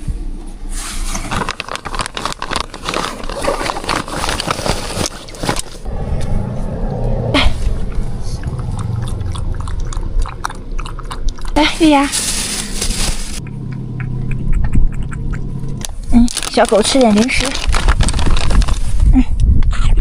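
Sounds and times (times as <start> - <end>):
low steady hum: 3.2 - 18.5
dog making sounds: 13.4 - 15.8.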